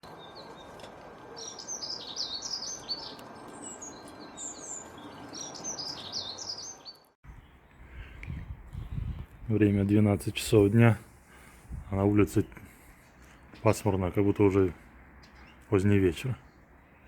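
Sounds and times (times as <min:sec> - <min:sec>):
songbird twittering: 0:01.4 - 0:09.5, 0:15.1 - 0:15.8.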